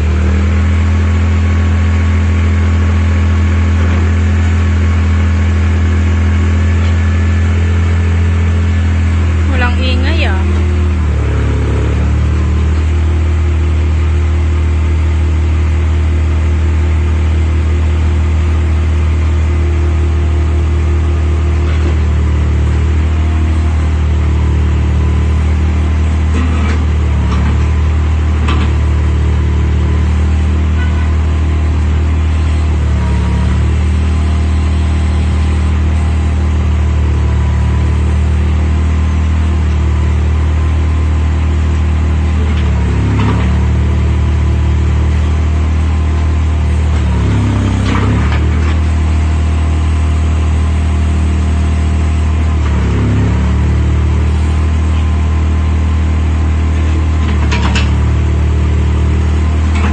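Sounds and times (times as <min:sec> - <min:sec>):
diesel engine running steadily: 0:00.0 - 0:59.9.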